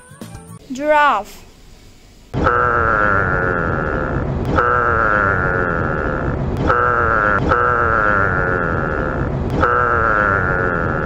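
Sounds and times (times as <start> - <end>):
long falling animal call: 2.5 - 11.0.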